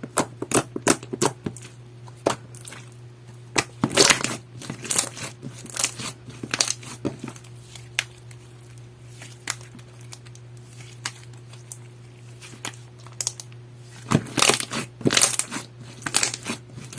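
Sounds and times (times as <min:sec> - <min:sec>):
slime squishing with crackling clicks: 0:14.3 - 0:16.6.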